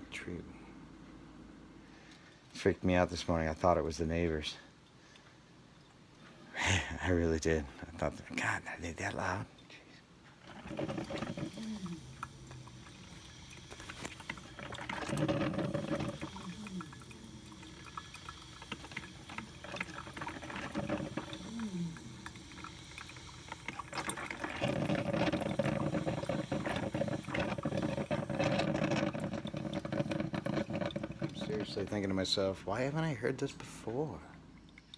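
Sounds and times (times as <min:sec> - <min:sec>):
coffee maker gurgling: 0:06.6 - 0:09.5, 0:10.2 - 0:34.9.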